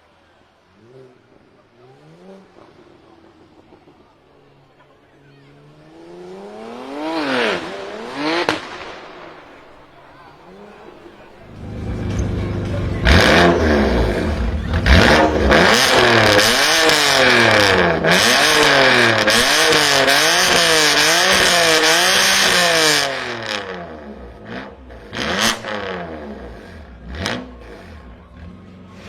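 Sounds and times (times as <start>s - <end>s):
car engine revving: 0.2s - 29.0s
exhaust cracks: 6.3s - 29.0s.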